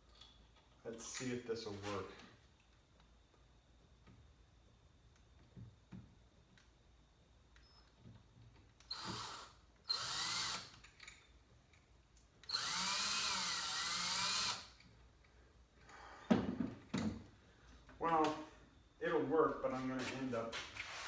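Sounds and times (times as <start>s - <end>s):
electric drill motor: 8.9s - 10.8s, 12.5s - 14.8s.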